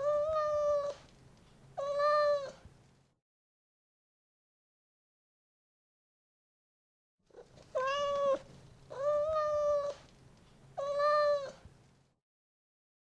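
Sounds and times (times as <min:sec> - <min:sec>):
cat meowing: 0:00.0 - 0:01.0, 0:01.8 - 0:02.6, 0:07.4 - 0:10.0, 0:10.8 - 0:11.6.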